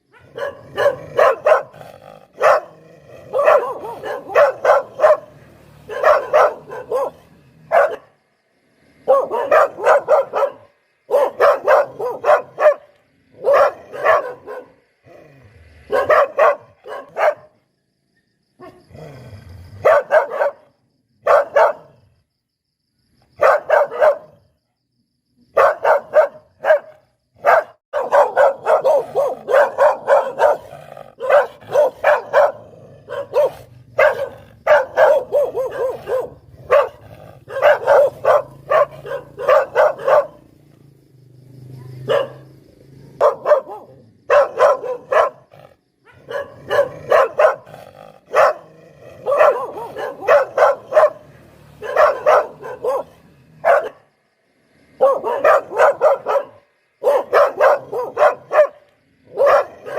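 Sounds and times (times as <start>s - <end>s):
dog barking: 0.0s - 8.2s, 9.0s - 14.9s, 15.8s - 17.6s, 18.6s - 18.9s, 19.8s - 22.0s, 23.4s - 24.6s, 25.5s - 40.6s, 41.6s - 54.1s, 54.9s - 59.9s.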